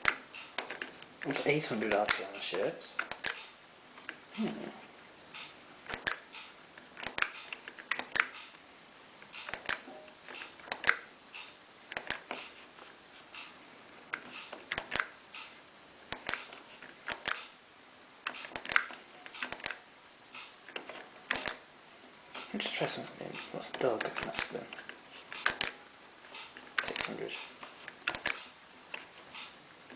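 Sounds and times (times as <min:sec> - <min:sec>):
washing machine control clicks: 0:03.0 - 0:03.5, 0:05.4 - 0:08.5, 0:09.4 - 0:12.4, 0:18.2 - 0:19.8, 0:23.4 - 0:24.7, 0:28.0 - 0:28.5.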